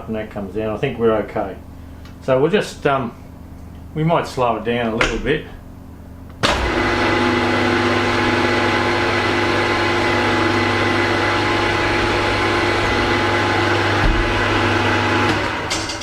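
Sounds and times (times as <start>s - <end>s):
milling machine motor humming: 6.4s - 16.0s.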